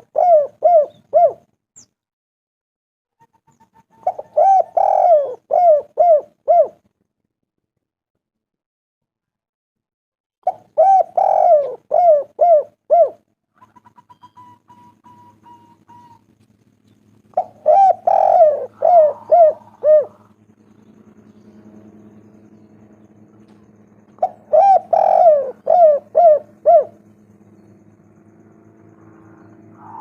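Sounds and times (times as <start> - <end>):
dove cooing: 0.0 - 1.5, 3.9 - 6.8, 10.4 - 16.3, 17.3 - 28.0, 28.7 - 30.0.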